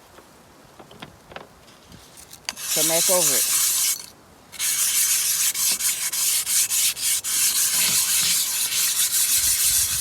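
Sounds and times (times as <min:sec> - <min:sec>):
brick scraping cast iron skillet: 0:02.5 - 0:10.0.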